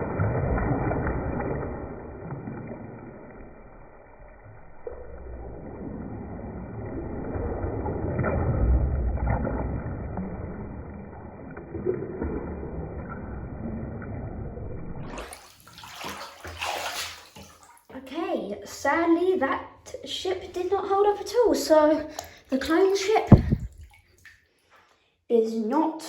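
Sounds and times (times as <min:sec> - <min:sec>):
bathwater sloshing: 0:15.1 - 0:17.9, 0:20.9 - 0:24.7.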